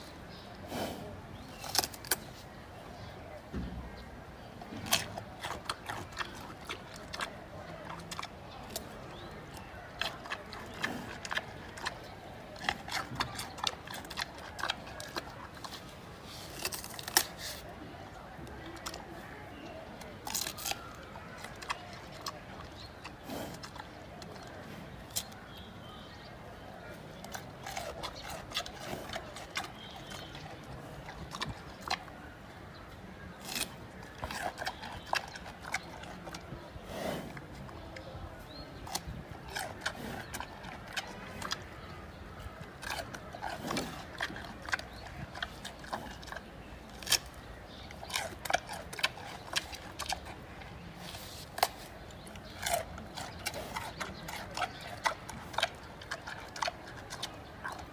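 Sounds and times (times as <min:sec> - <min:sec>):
panda chewing bamboo: 0:04.8 - 0:25.4, 0:27.2 - 0:32.1, 0:33.4 - 0:41.9, 0:42.6 - 0:57.9.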